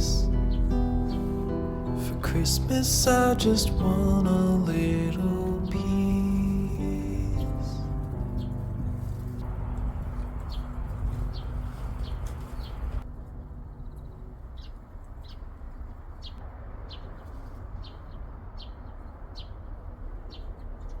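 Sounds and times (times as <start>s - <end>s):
background music: 0.0s - 11.3s
low rumble: 0.0s - 15.7s
songbird chirping: 0.0s - 21.0s.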